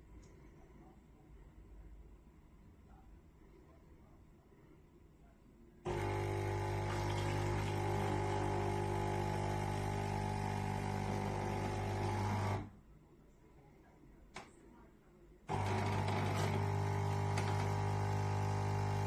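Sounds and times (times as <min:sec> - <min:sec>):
coffee machine humming buzz: 0:05.9 - 0:12.7, 0:15.5 - 0:19.0.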